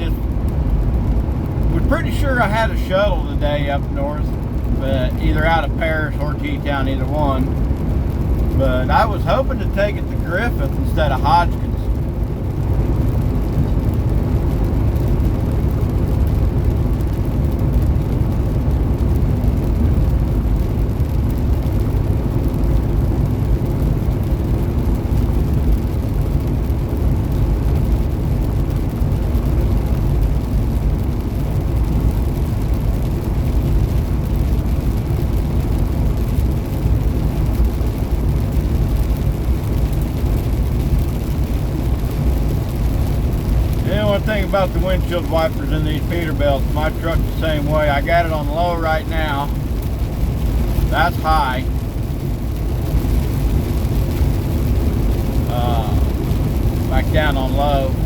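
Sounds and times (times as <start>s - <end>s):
diesel truck engine under load: 0.0s - 58.0s
tyre and road noise: 0.0s - 58.0s.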